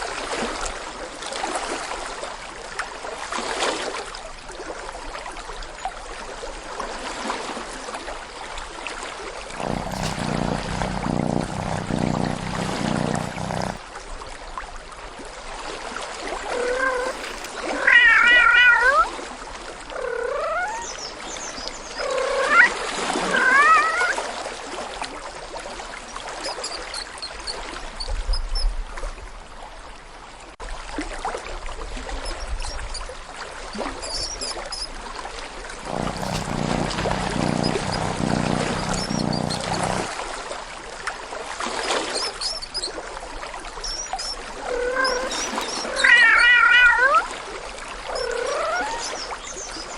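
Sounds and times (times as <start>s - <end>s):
steady water-like rush: 9.6s - 13.8s, 16.5s - 18.7s, 35.8s - 40.1s, 44.6s - 47.8s.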